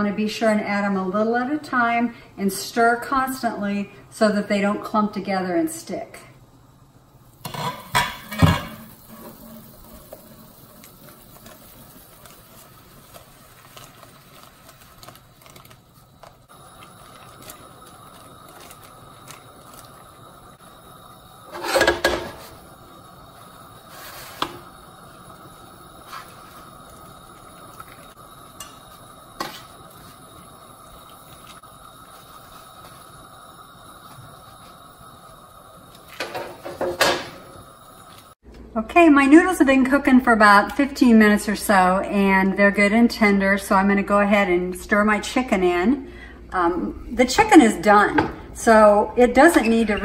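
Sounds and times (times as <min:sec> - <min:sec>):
spoon scraping metal sheet: 0:21.5 - 0:22.5.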